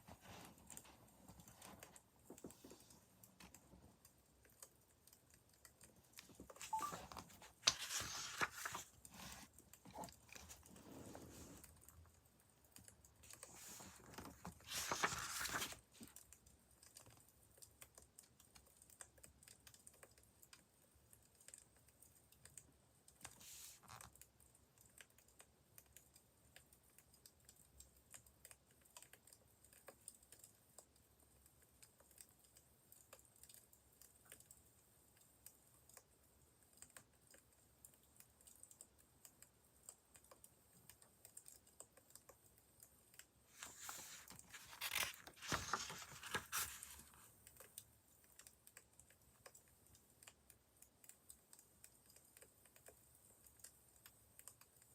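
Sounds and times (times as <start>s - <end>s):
papery rustle: 6.3s - 11.7s, 13.3s - 16.2s, 43.5s - 47.3s.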